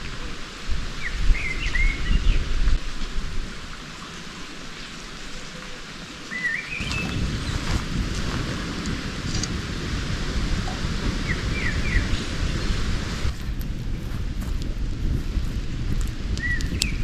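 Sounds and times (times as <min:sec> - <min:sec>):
steady hiss: 0:00.0 - 0:17.0
irregular low rumble: 0:06.8 - 0:17.0.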